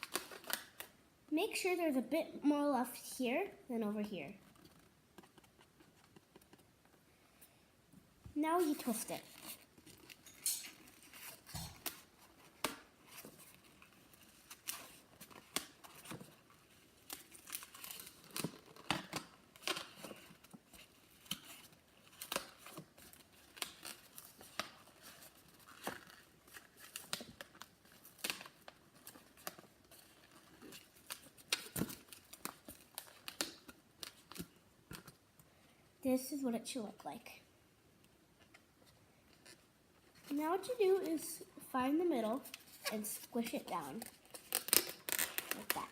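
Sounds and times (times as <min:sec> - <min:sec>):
rubber balloon rubbing crackles: 0:44.0 - 0:45.9.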